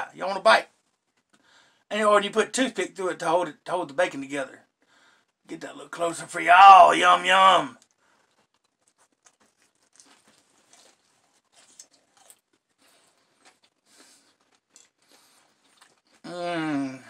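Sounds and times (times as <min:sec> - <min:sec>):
man chewing: 0:00.8 - 0:01.8, 0:07.8 - 0:16.3.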